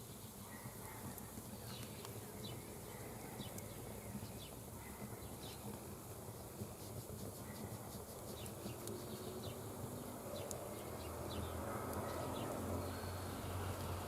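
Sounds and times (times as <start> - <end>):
faint ticks: 6.6 - 9.6, 10.4 - 11.1.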